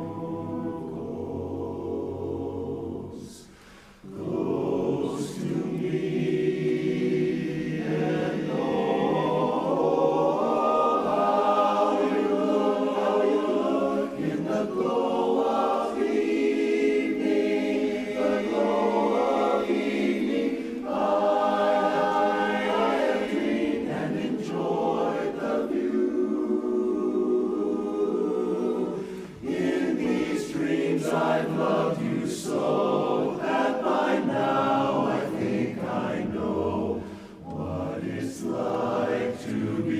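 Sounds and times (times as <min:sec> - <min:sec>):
chorus singing a cappella: 0:00.0 - 0:39.9.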